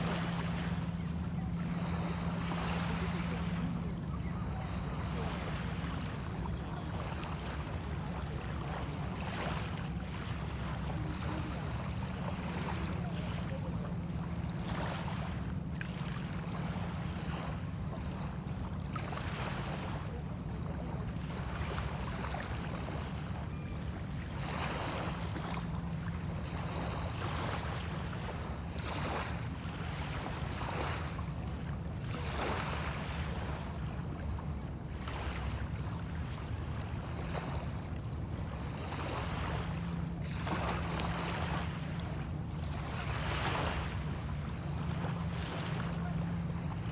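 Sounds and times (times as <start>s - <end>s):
small waves washing ashore: 0.0s - 46.9s.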